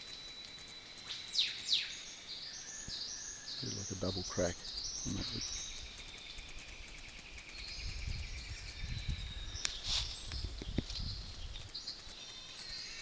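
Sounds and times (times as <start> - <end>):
pulsing trill: 0.0 - 2.6
birds calling: 0.0 - 13.0
low rumble on microphone: 7.2 - 11.8.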